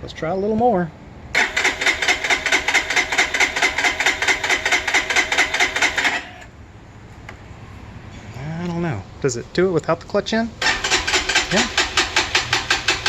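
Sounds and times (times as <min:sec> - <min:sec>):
electric starter cranking engine: 0:01.4 - 0:06.5, 0:10.6 - 0:13.0.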